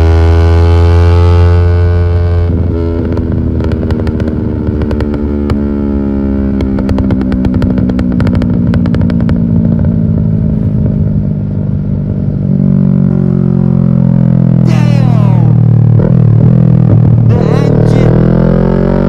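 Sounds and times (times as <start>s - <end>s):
motorcycle engine decelerating: 0.0s - 19.0s
exhaust pops and crackles: 2.8s - 5.8s, 6.5s - 10.0s.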